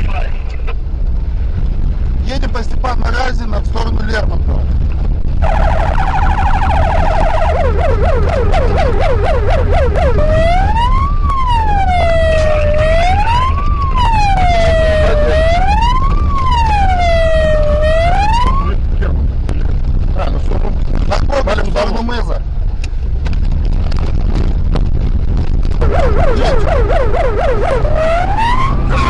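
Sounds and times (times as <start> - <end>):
road and engine rumble: 0.0 - 29.0
police siren: 5.4 - 18.8, 25.8 - 29.0.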